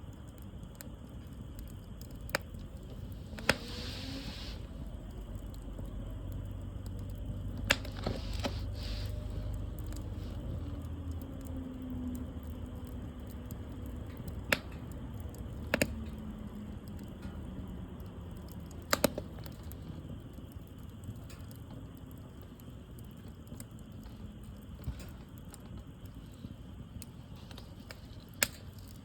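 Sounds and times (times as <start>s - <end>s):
fire rumbling: 0.0s - 29.0s
wood fire crackling pops: 0.0s - 29.0s.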